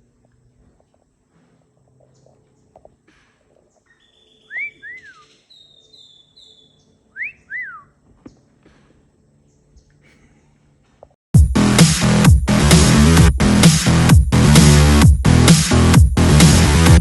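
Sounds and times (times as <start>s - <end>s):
two-note wolf whistle: 4.3s - 5.3s, 7.1s - 7.9s.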